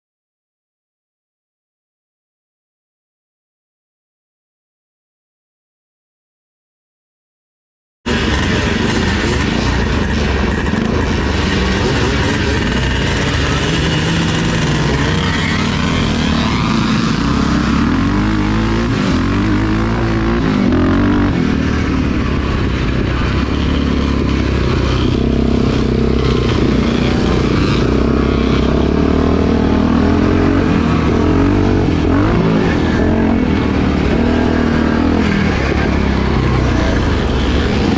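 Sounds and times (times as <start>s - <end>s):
motorcycle engines revving: 8.1s - 37.9s.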